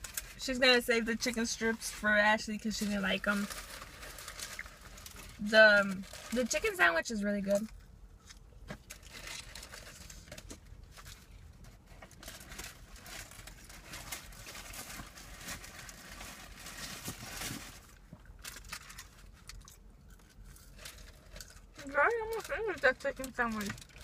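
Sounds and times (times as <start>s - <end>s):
chewing and crunching food: 17.9s - 22.4s.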